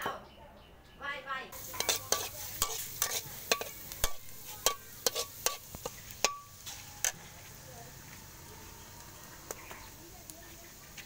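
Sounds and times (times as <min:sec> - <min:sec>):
garlic sizzling in hot oil: 0:01.5 - 0:11.0
metal spatula scraping a wok: 0:01.6 - 0:07.5.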